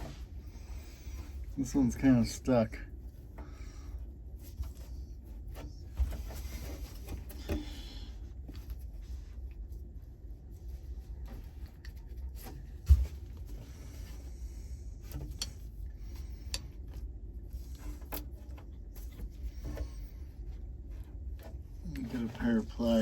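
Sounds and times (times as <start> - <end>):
hands clicking and scraping parts: 15.0 - 22.3.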